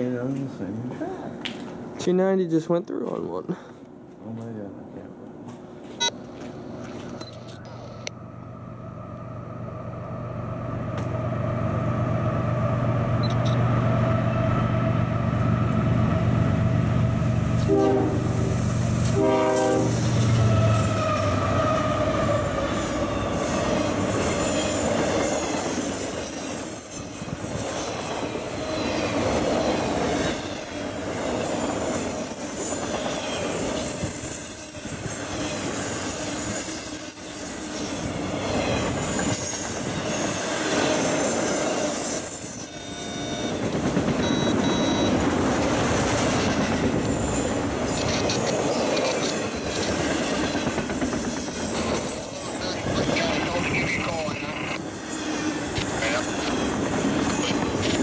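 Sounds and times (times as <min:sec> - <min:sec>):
locomotive engine hum: 0:05.2 - 0:26.9
train horn blasts: 0:17.6 - 0:22.5
high wheel squeal: 0:19.2 - 0:29.4, 0:30.2 - 0:45.2, 0:51.2 - 0:58.0
train wheel clatter: 0:22.6 - 0:58.0.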